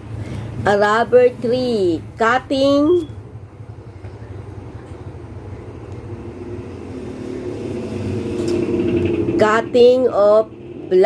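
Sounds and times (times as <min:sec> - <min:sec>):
vehicle engine hum: 0:00.0 - 0:11.0
pitched drone: 0:06.0 - 0:11.0.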